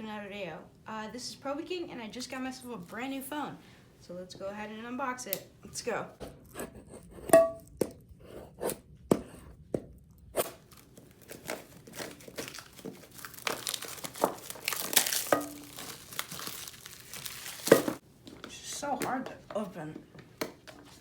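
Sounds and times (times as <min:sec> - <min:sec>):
packaging cracking: 0:10.4 - 0:18.0
packaging tearing and crinkling: 0:10.4 - 0:18.0.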